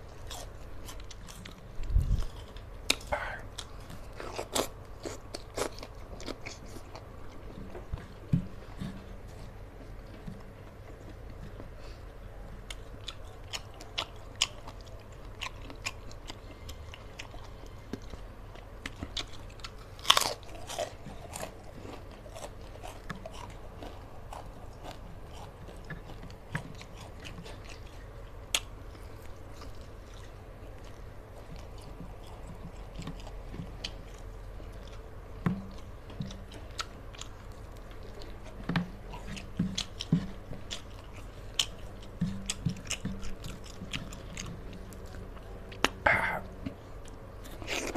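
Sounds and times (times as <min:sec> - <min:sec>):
man chewing food: 0:00.0 - 0:47.9
steady low hum: 0:00.0 - 0:47.9
sharp crunches and clicks: 0:12.6 - 0:47.9.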